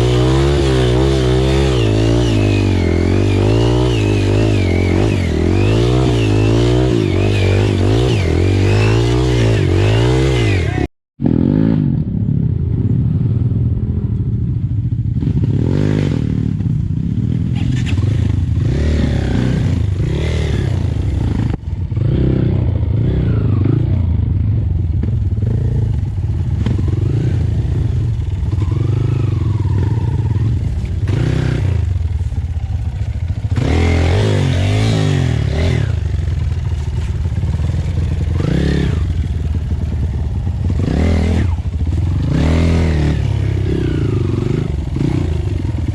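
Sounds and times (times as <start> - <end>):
motorcycle engine revving: 0.0 - 45.9
bike rattling and clatter: 30.4 - 42.4.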